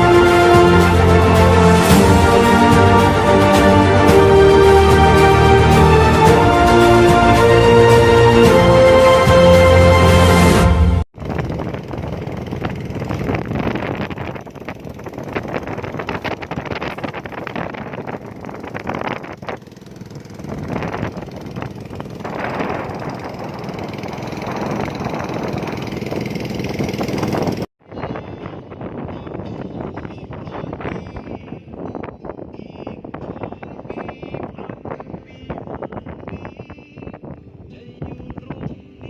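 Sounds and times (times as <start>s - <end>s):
theme music: 0.0s - 11.0s
boat engine running: 11.2s - 27.7s
wind buffeting microphone: 11.2s - 39.0s.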